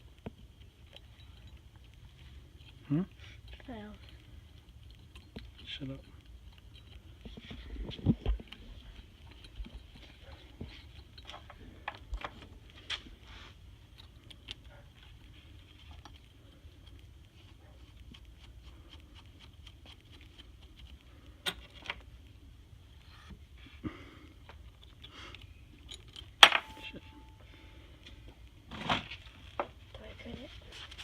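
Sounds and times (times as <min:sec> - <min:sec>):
small metal parts clicking: 0:00.3 - 0:12.8, 0:24.4 - 0:27.1.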